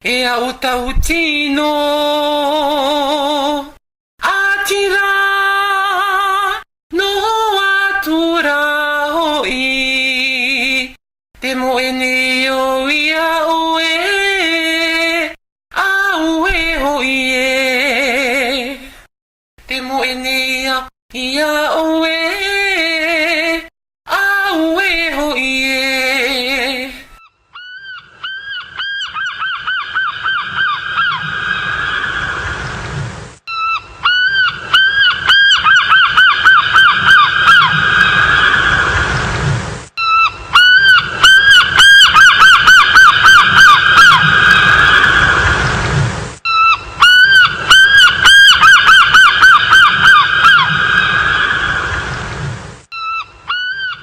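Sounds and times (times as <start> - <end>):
honking animal calls: 33.5 - 39.0, 40.0 - 45.4, 46.5 - 52.2
low rumble: 44.1 - 46.4.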